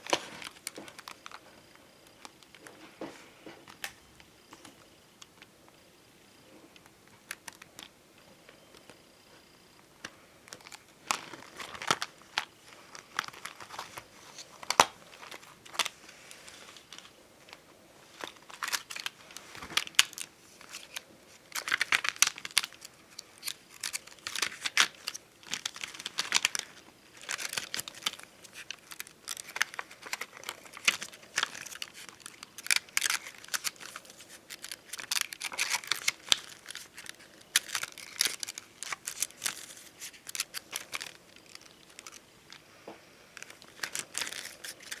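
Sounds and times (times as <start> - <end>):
stickers crinkling and tearing: 10.0 - 42.7, 43.4 - 45.0.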